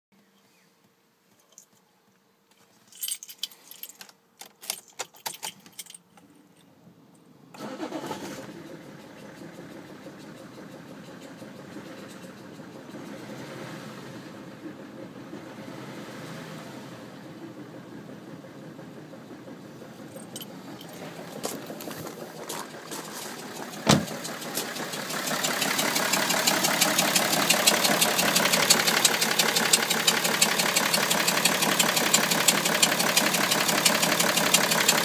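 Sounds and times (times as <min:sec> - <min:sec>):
keys jangling: 0:02.9 - 0:06.7, 0:20.1 - 0:23.3
diesel engine starting and idling: 0:07.5 - 0:35.0.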